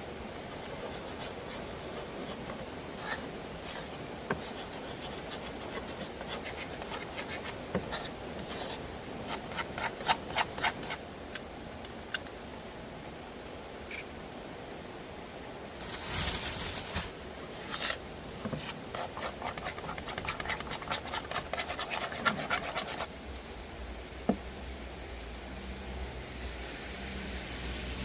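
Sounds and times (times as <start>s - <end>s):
background hiss: 0.0s - 28.0s
objects rubbing and scraping: 0.5s - 11.0s, 15.8s - 23.1s.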